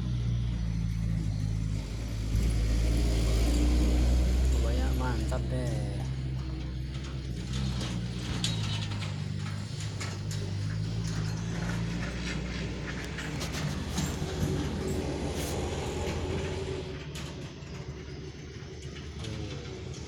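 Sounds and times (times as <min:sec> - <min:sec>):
vehicle engine droning: 0:00.0 - 0:20.0
loose rattling and clattering: 0:04.4 - 0:20.0.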